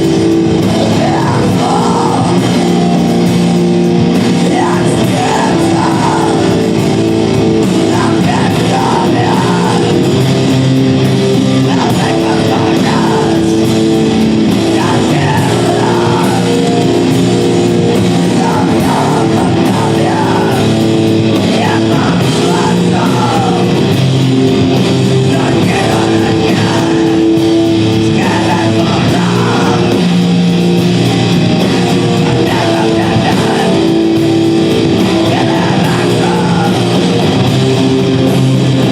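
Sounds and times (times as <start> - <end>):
distorted electric guitars: 0.0 - 38.9
shouted vocals: 0.6 - 2.8, 4.3 - 6.9, 7.8 - 10.2, 11.5 - 13.7, 14.5 - 17.2, 18.0 - 23.9, 25.2 - 27.4, 28.0 - 30.3, 32.0 - 37.3.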